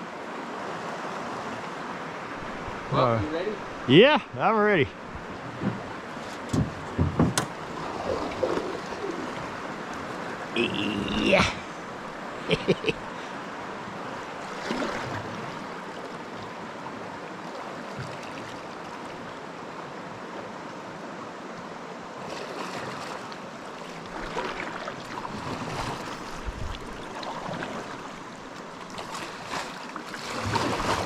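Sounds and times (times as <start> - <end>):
river current rushing: 0.0 - 31.0
paddle splashes and knocks: 5.2 - 10.5, 22.2 - 31.0.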